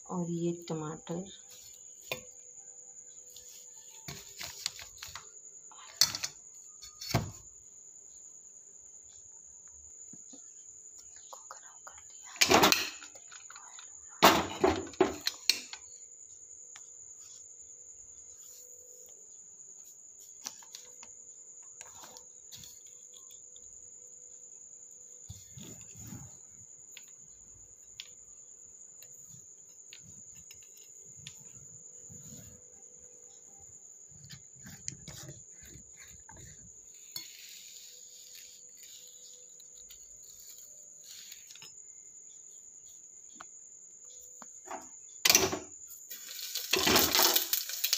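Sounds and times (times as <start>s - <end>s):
cricket chirping: 0.0s - 47.9s
kitchen utensils and pots clinking: 12.4s - 13.1s, 14.2s - 15.6s, 44.7s - 47.9s.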